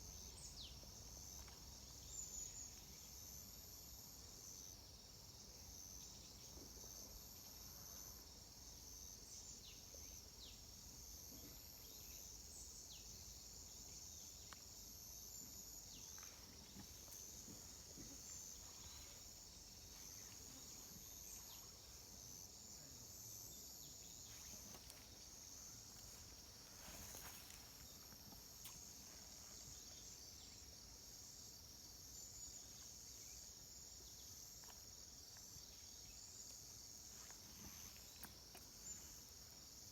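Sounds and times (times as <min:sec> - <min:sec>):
crickets chirping: 0:00.0 - 0:39.9
soft rustle: 0:24.2 - 0:30.1.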